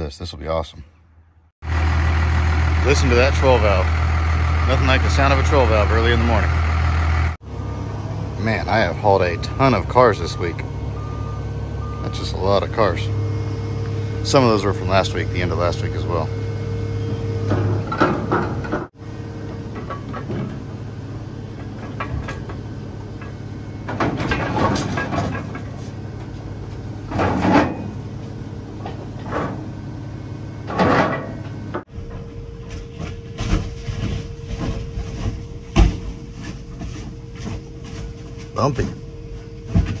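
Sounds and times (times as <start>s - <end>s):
truck engine running: 1.6s - 40.0s
metal clanks and rattles: 17.4s - 29.8s, 30.6s - 40.0s.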